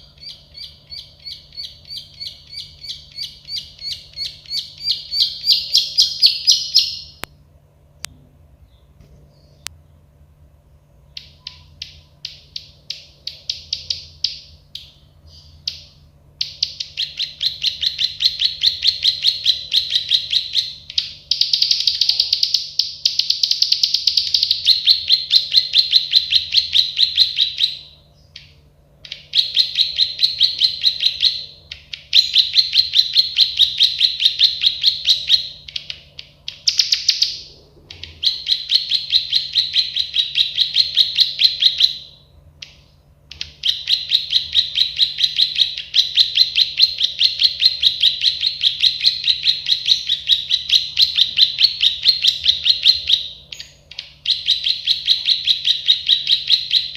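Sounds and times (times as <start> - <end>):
bird singing rapid clicking notes: 0.2 - 7.3, 11.1 - 42.0.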